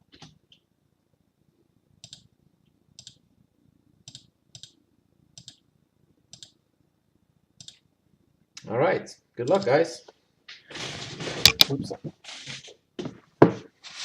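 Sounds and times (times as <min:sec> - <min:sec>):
computer clicks: 0:02.0 - 0:02.3, 0:03.0 - 0:03.2, 0:04.0 - 0:04.8, 0:05.4 - 0:05.6, 0:06.3 - 0:06.6, 0:07.6 - 0:07.8, 0:09.4 - 0:09.8.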